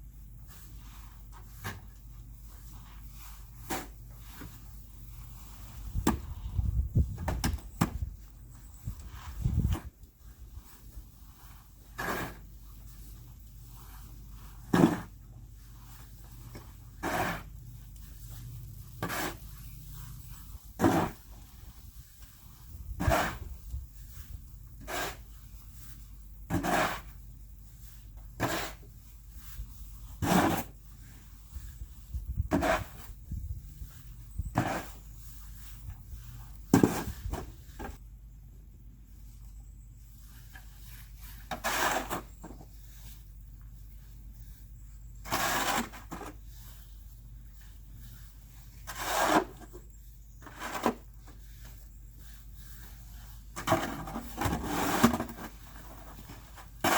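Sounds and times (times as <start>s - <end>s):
snow shovel scraping snow: 0.4s - 6.6s, 9.1s - 27.2s, 28.4s - 30.8s, 32.5s - 33.2s, 34.0s - 38.0s, 40.8s - 43.2s, 45.2s - 46.9s, 47.7s - 49.8s, 50.4s - 51.7s, 52.4s - 56.9s.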